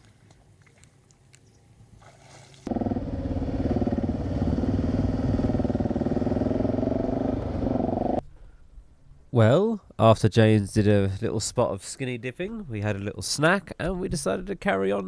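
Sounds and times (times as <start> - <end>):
motorcycle engine running: 2.7 - 8.2.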